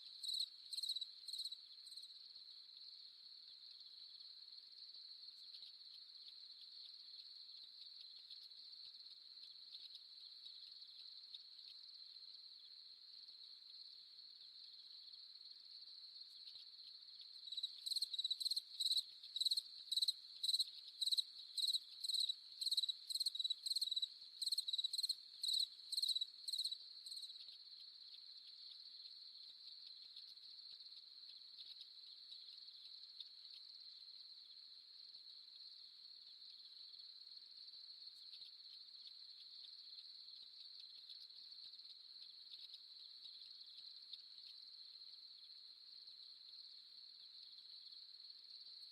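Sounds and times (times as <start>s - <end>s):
nearby cricket chirping: 0.0s - 48.9s
crickets trilling: 16.2s - 27.6s.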